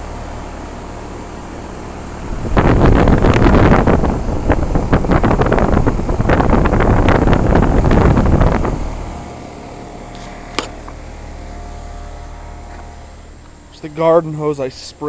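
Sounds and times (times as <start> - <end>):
air conditioner compressor hum: 0.0 - 15.0
wind buffeting microphone: 2.2 - 11.1.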